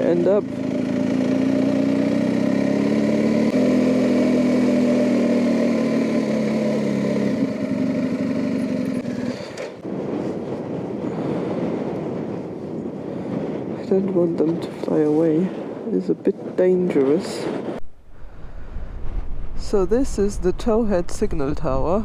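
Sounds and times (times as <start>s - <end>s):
motorcycle engine running: 0.0s - 9.8s
wind noise: 9.1s - 22.0s.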